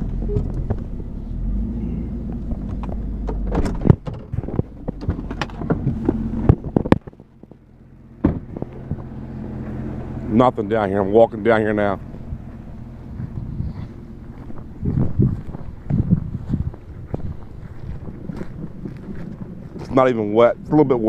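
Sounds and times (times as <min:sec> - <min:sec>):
car door opening and shutting: 0:00.0 - 0:01.1, 0:02.3 - 0:07.1, 0:08.2 - 0:09.1
car engine rumbling: 0:00.0 - 0:21.0.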